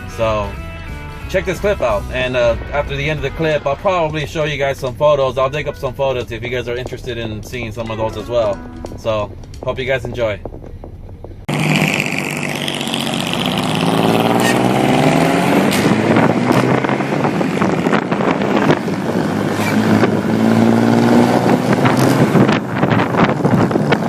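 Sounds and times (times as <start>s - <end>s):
car engine accelerating: 0.0s - 24.0s
wind buffeting microphone: 6.0s - 24.0s.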